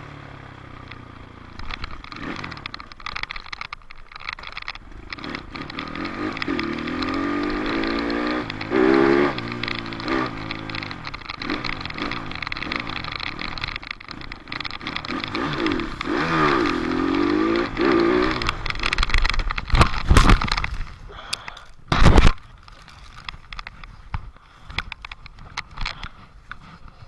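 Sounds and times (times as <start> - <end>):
dirt bike engine revving: 0.0 - 3.4, 4.5 - 21.0.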